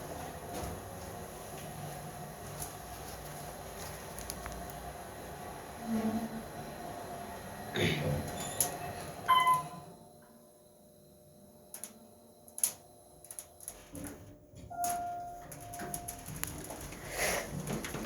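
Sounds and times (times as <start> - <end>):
lift electronic beep: 9.3 - 9.8.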